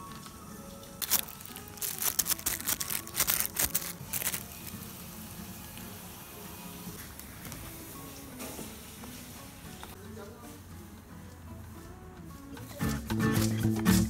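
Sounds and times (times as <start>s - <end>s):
soft background music: 0.0s - 14.0s
plastic bag crinkling: 1.0s - 4.8s.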